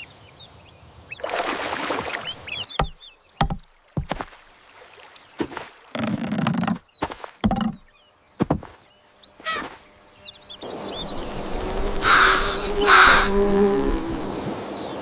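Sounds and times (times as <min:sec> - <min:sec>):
sharp knocks: 0:02.8 - 0:04.4, 0:07.4 - 0:08.8
steady buzzing: 0:09.9 - 0:14.5.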